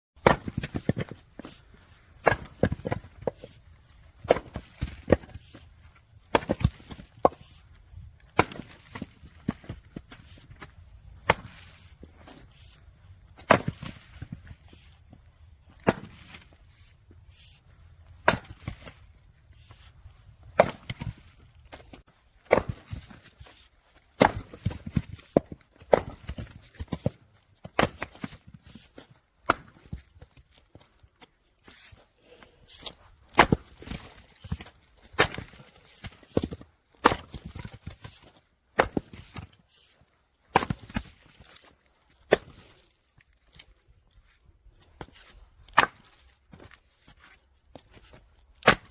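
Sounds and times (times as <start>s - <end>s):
wood splitting crack: 0.2s - 1.1s, 2.2s - 3.3s, 8.2s - 9.8s, 13.4s - 14.4s, 15.8s - 16.4s, 18.2s - 19.0s, 20.6s - 21.2s, 22.5s - 23.1s, 24.2s - 26.9s, 27.7s - 28.4s, 29.4s - 29.9s, 33.3s - 38.0s, 40.5s - 41.2s, 45.7s - 46.2s, 48.6s - 48.9s.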